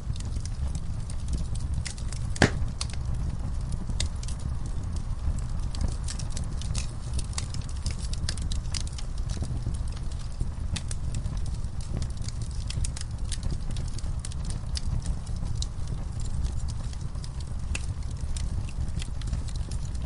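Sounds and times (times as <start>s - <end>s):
low fire rumble: 0.0s - 20.0s
wood fire crackling and popping: 0.0s - 20.0s.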